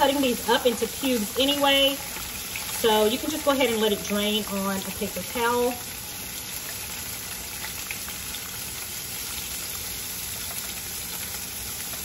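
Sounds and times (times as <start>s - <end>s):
steak sizzling in oil: 0.0s - 12.0s.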